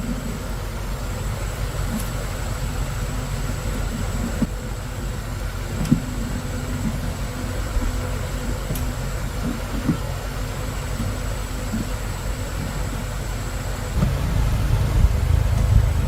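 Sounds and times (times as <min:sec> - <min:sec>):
faint steady hum: 0:13.3 - 0:16.0
engine running low rumble: 0:13.8 - 0:16.0.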